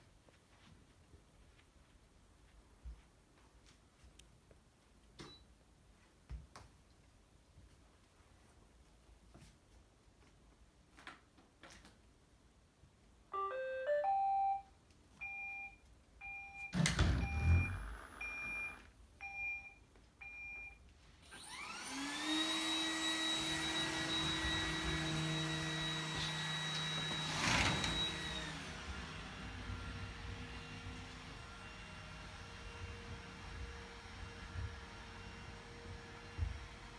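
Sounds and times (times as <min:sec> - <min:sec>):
short beeps: 0:13.4 - 0:20.7
thump: 0:16.8 - 0:17.8
vacuum suction motor whine: 0:16.8 - 0:18.9, 0:21.3 - 0:36.9.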